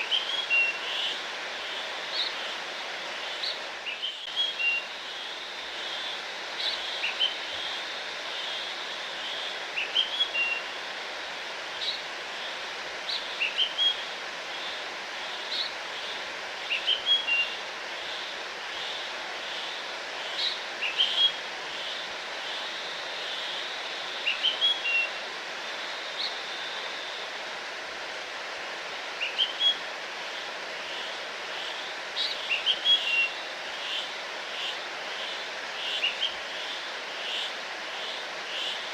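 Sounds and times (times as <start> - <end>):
songbird singing: 3.4 - 5.0, 24.2 - 25.2.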